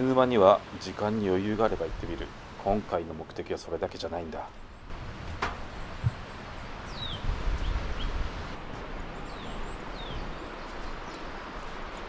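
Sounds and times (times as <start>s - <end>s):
steady outdoor hiss: 0.0s - 12.0s
low thumps on microphone: 5.0s - 6.3s
small birds chirping: 5.6s - 12.0s.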